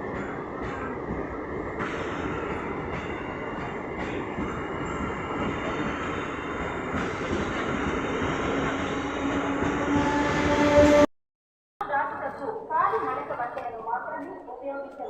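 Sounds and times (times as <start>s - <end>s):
train wheels rumbling on track: 0.0s - 11.1s.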